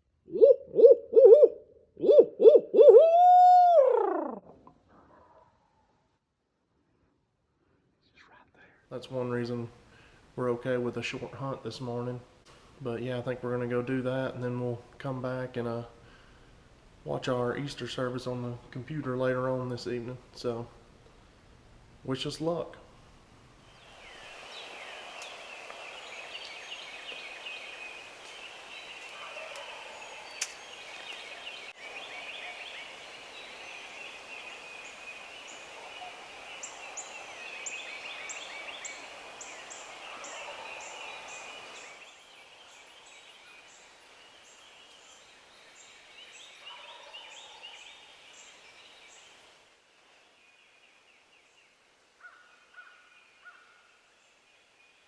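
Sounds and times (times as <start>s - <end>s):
turkey gobbling: 0.3s - 4.5s
dawn chorus of songbirds: 23.6s - 55.0s.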